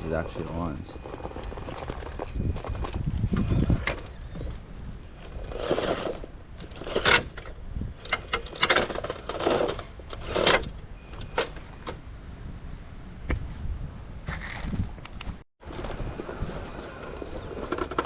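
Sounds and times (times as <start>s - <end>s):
toy truck motor whirring: 0.4s - 10.7s, 16.2s - 18.0s.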